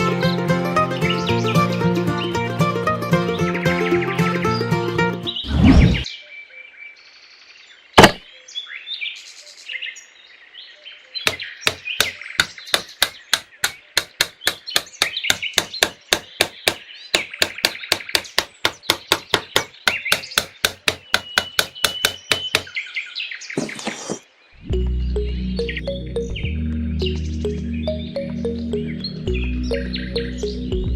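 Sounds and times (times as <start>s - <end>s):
birds chirping: 0.0s - 30.9s
rapid knocking: 11.3s - 22.7s.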